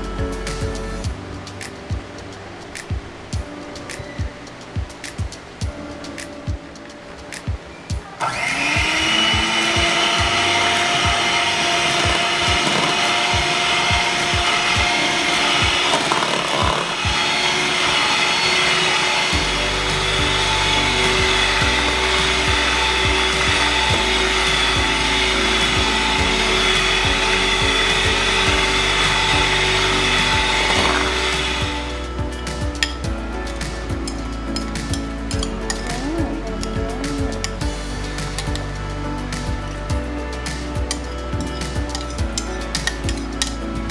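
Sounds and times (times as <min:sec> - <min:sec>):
background music with low beat: 0:00.0 - 0:08.1, 0:08.7 - 0:43.9
kitchen appliance motor running: 0:08.2 - 0:32.0.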